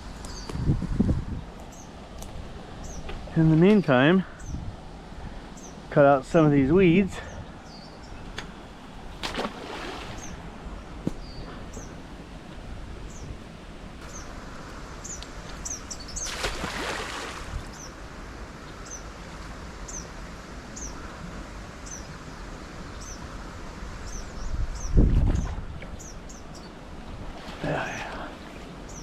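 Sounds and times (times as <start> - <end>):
bird chirping: 7.2 - 8.2.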